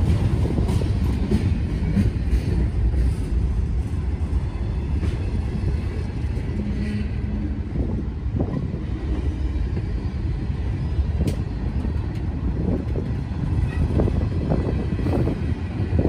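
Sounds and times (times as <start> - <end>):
steel wheels rumbling on track: 0.0 - 16.0
clicks from rail joints: 11.2 - 13.9.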